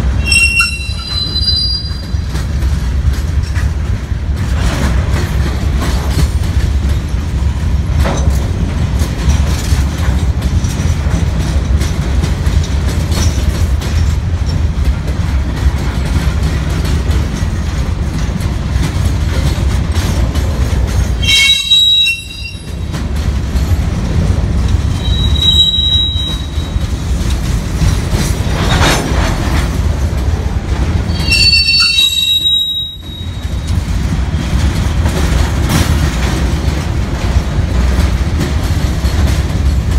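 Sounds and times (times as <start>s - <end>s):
train wheels rumbling on rails: 0.0s - 39.9s
metal wheel squeals: 0.2s - 2.2s, 21.2s - 22.8s, 25.0s - 26.8s, 31.1s - 33.8s.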